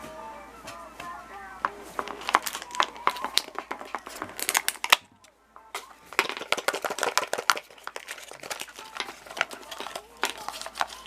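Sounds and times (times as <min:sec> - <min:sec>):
plastic wrapper crinkling: 0:02.0 - 0:05.2, 0:05.8 - 0:11.0
quick clicks and crackles: 0:02.0 - 0:11.0.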